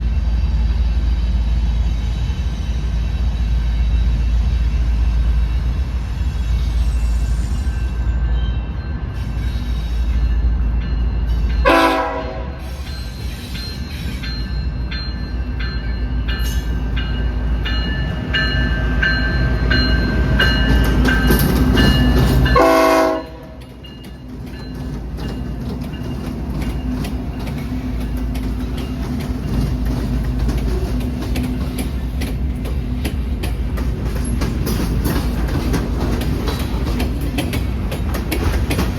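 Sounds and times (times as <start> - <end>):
locomotive engine and rail rumble: 0.0 - 38.9
train horn blast: 11.6 - 12.6, 22.5 - 23.6.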